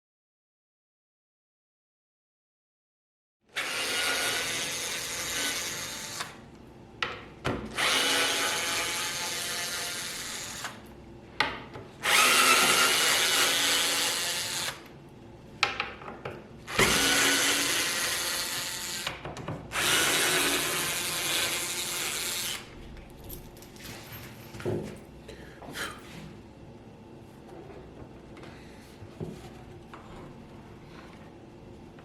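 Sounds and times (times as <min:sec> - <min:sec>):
power drill running: 0:03.6 - 0:06.4, 0:07.7 - 0:10.8, 0:12.0 - 0:14.9, 0:16.7 - 0:19.1, 0:19.7 - 0:22.7.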